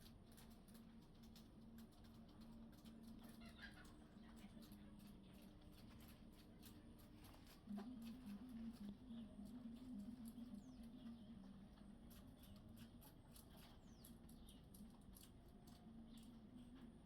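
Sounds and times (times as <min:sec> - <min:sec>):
patter of light clicks: 0:00.0 - 0:16.9.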